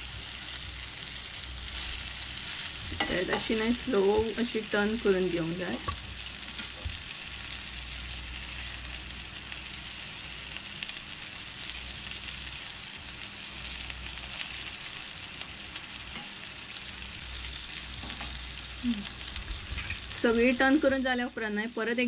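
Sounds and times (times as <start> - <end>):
fish sizzling in oil: 0.0 - 22.0
metal spatula scraping a pan: 19.7 - 20.1.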